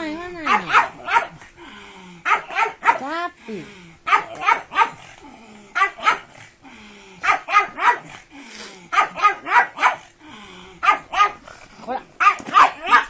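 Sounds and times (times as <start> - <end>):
dog barking excitedly: 0.4 - 1.4, 2.2 - 3.2, 4.0 - 5.1, 5.8 - 6.4, 7.2 - 8.2, 8.9 - 10.1, 10.8 - 11.4, 12.2 - 13.0.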